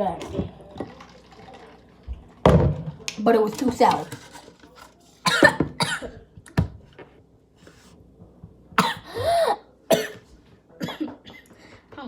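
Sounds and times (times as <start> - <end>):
person coughing: 5.3 - 6.2, 8.8 - 10.2, 10.8 - 11.5.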